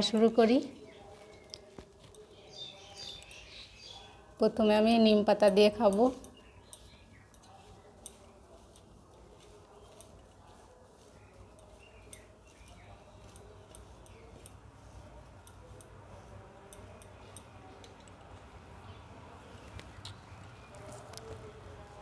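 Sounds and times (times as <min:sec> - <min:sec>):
rice mixed by hand on plate: 0:00.0 - 0:22.0
chewing: 0:00.8 - 0:04.4, 0:06.0 - 0:18.6.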